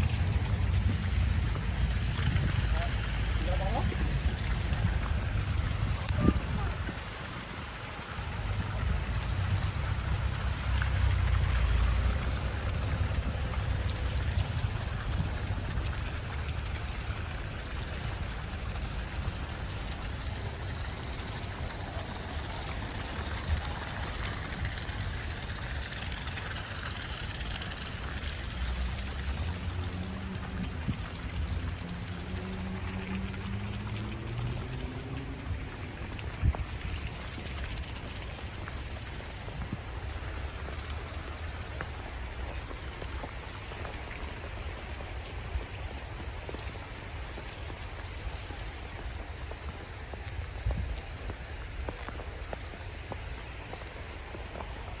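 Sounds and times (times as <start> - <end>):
snowstorm wind: 0.0 - 29.6
low street rumble: 0.0 - 55.0.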